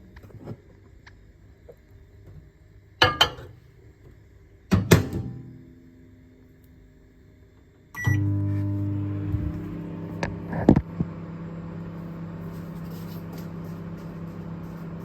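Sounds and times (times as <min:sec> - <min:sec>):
microwave oven humming: 0:03.0 - 0:15.0
microwave beep: 0:08.0 - 0:10.4.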